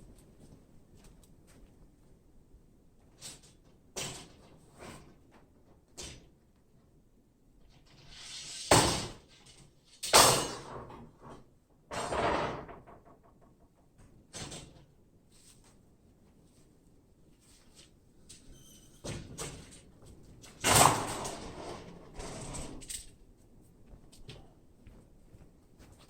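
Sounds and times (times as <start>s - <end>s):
sliding scraping noise: 20.7s - 22.9s.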